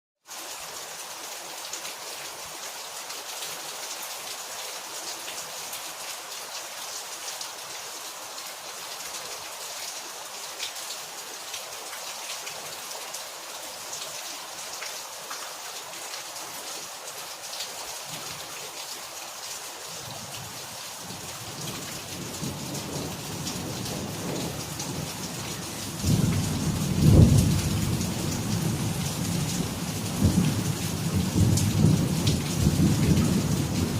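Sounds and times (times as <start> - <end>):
steady rain falling: 0.2 - 33.9
thunder rumbling: 26.0 - 33.9.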